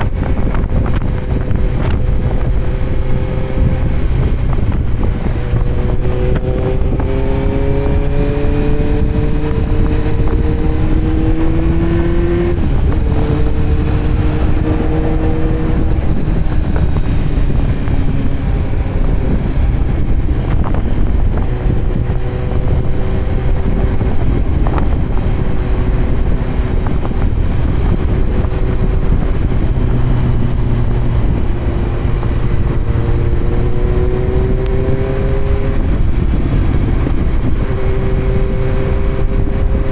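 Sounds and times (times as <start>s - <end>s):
constant low rush: 0.0s - 39.9s
motorcycle engine revving: 0.0s - 39.9s.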